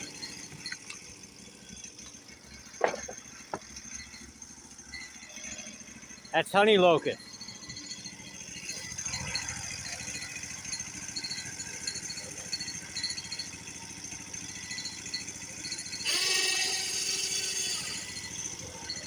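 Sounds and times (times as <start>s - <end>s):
engine-driven machinery running: 0.0s - 19.0s.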